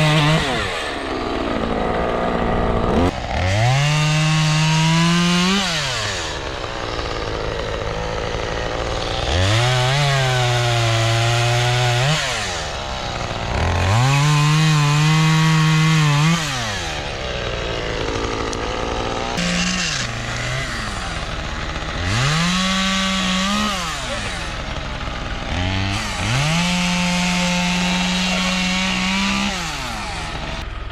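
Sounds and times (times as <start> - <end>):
chainsaw revving and cutting: 0.0 - 30.9.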